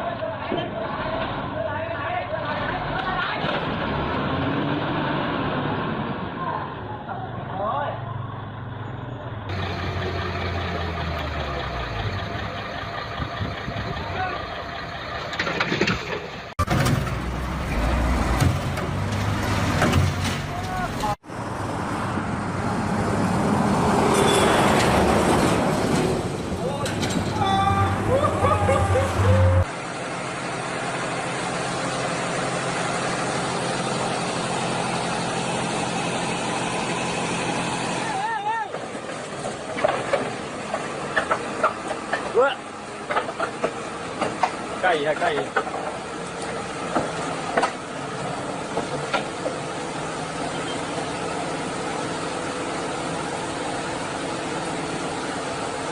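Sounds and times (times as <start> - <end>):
heavy vehicle engine rumbling: 0.0 - 55.9
vehicle engine running: 8.3 - 21.5, 27.4 - 38.2.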